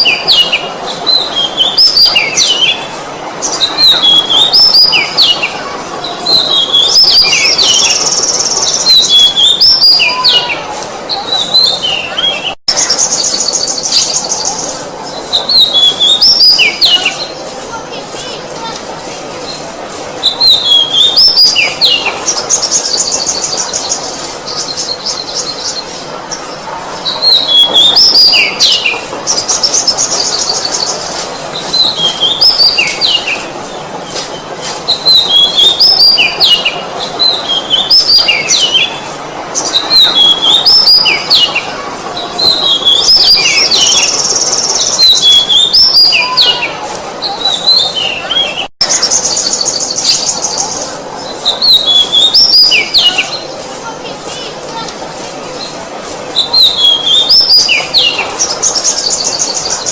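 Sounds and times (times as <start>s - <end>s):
bird singing whistled notes: 0.0s - 5.5s, 6.3s - 17.4s, 20.2s - 25.8s, 31.7s - 33.4s, 34.9s - 39.0s, 39.7s - 41.6s, 42.4s - 50.8s, 51.5s - 53.4s, 56.4s - 59.8s
high rattling bird trill: 0.0s - 59.9s.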